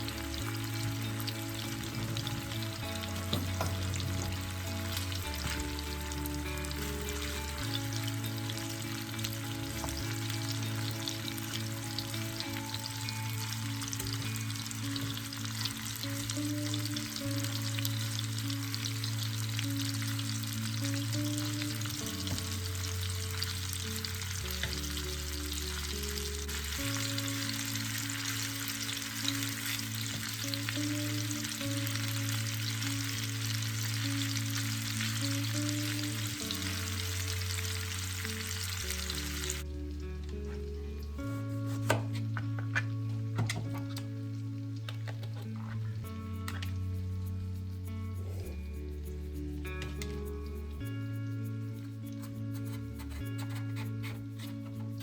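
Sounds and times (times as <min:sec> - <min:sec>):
food frying in hot oil: 0:00.0 - 0:41.3
soft background music: 0:00.0 - 0:55.0.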